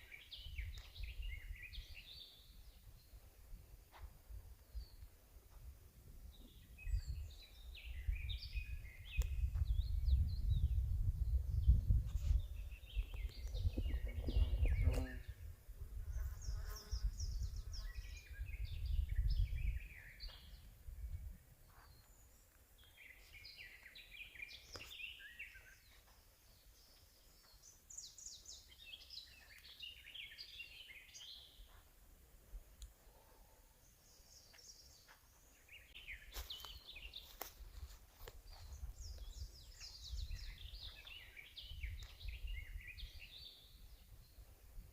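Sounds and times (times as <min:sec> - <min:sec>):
songbirds singing and chirping: 0:00.0 - 0:44.9.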